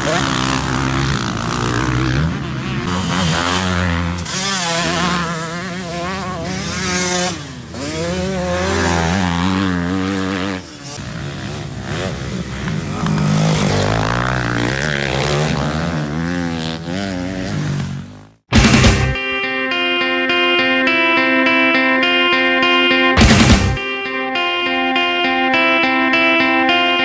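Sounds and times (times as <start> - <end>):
dirt bike engine revving: 0.0 - 19.2, 22.1 - 24.0.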